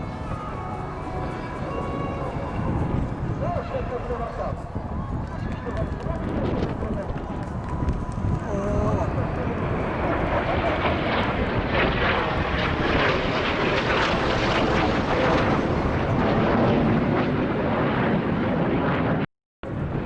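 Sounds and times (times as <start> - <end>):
jet engine roar: 0.0 - 20.0.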